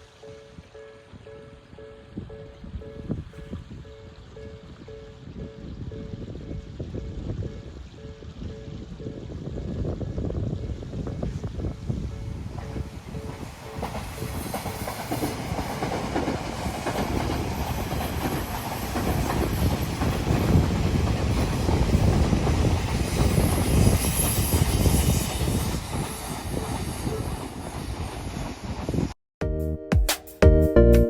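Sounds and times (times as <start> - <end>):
train wheels clattering over rail joints: 12.5 - 28.6.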